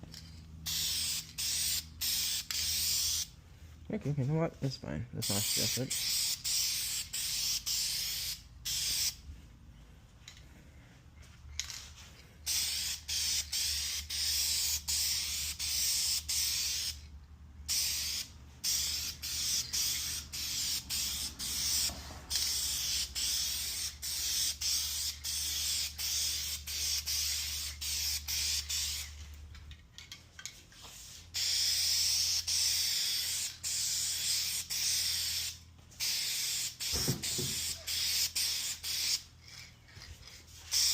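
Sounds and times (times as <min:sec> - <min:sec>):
spray paint can hissing: 0:00.6 - 0:03.3, 0:05.2 - 0:09.2, 0:12.4 - 0:17.1, 0:17.7 - 0:29.2, 0:30.8 - 0:40.9.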